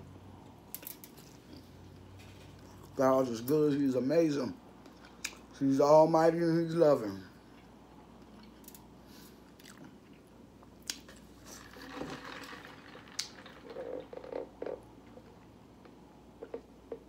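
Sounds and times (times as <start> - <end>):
chewing food: 1.2 - 3.0, 9.4 - 11.0.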